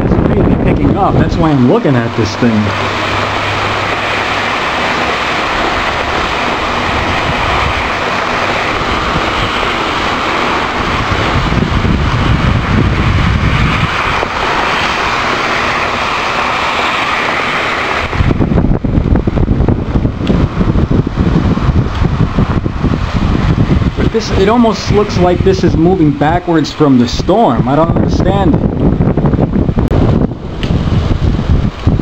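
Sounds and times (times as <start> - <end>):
strong wind rushing: 0.0 - 32.0
wind gusts buffeting microphone: 0.0 - 32.0.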